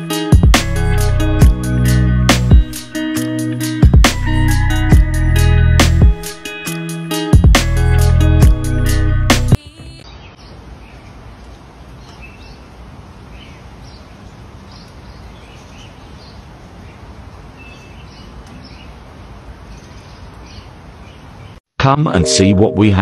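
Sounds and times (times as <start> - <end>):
small birds chirping: 10.0 - 21.6.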